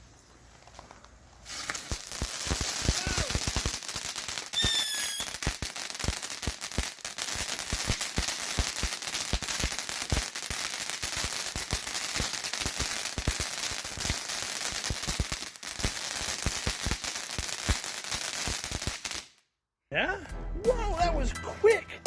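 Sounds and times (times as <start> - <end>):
firework fountain crackling and hissing: 0.0 - 19.4.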